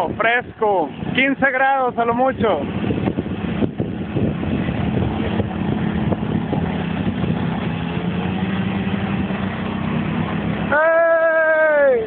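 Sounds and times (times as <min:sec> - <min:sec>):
motorcycle engine running: 0:02.6 - 0:11.1.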